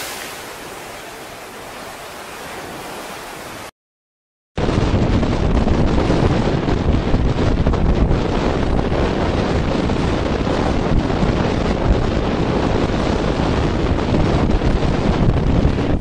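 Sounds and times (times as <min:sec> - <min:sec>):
heavy surf breaking: 0:00.0 - 0:03.7
wind buffeting microphone: 0:04.6 - 0:16.0.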